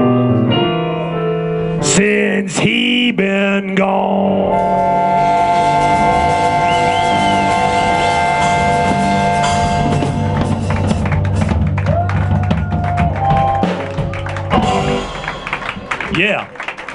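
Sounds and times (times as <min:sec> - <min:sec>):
blues band held chord: 0:04.1 - 0:16.9
drum hits: 0:04.7 - 0:16.4.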